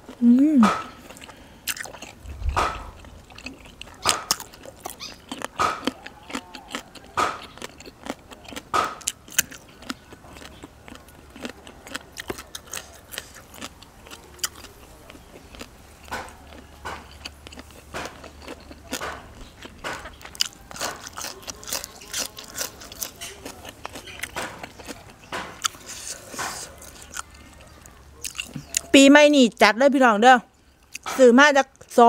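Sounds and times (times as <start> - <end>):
crunchy bite into raw vegetable: 0.0 - 28.9
chewing with crunching clicks: 0.0 - 29.0, 30.6 - 32.0.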